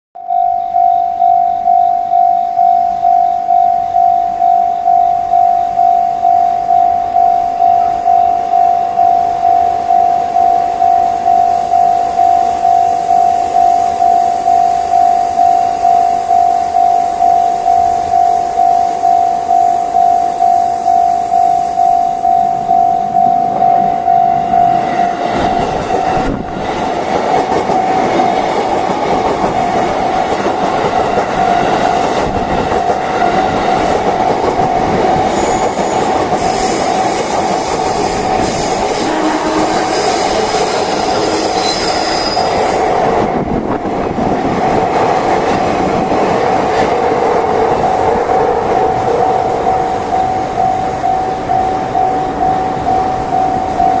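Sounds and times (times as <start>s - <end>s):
crossing alarm repeating tone: 0.2s - 44.4s, 45.2s - 54.0s
electric train passing: 0.3s - 54.0s
train wheels squealing: 23.8s - 30.7s, 35.1s - 43.0s.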